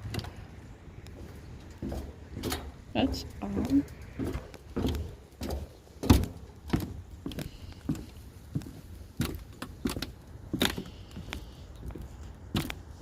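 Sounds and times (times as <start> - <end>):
footsteps walking: 0.0 - 13.0.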